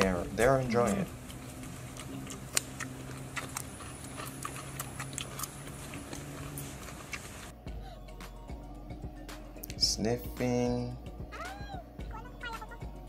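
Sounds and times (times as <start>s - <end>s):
wet chewing and lip-smacking: 0.0s - 7.6s.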